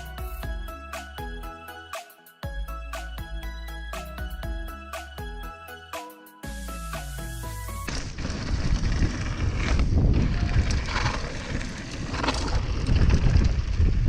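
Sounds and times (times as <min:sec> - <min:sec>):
wind buffeting microphone: 0:07.9 - 0:14.0.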